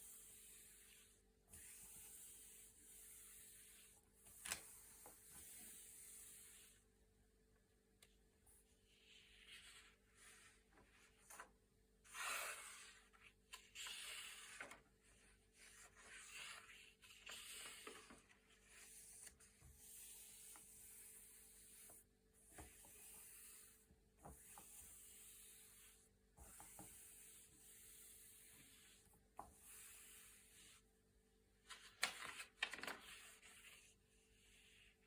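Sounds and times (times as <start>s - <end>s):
paper pages turning: 31.7s - 33.2s.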